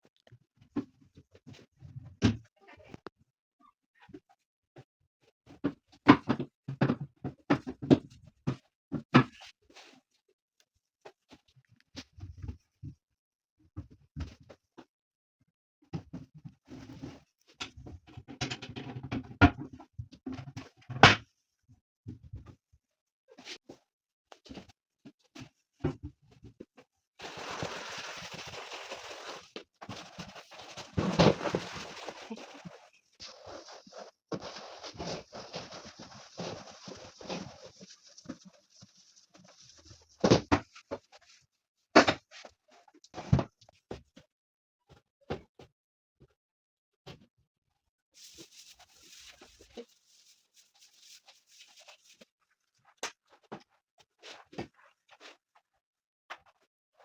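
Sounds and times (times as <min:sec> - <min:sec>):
rustling or wiping hiss: 0:27.2 - 0:40.0
steady rubbing noise: 0:28.2 - 0:40.2.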